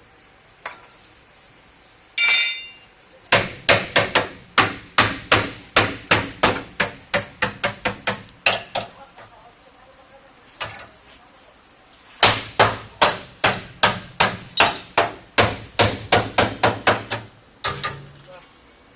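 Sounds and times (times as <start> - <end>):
hammer striking sheet metal: 2.2 - 8.9, 12.2 - 18.1.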